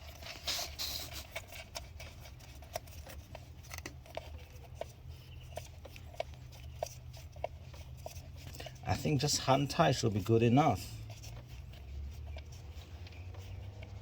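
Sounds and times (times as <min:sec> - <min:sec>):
plastic valve clicks and scrapes: 0:00.0 - 0:09.2.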